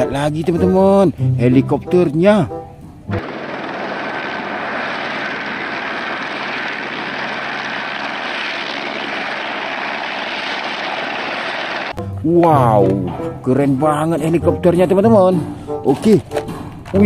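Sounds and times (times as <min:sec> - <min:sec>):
helicopter hovering: 0:03.1 - 0:12.0.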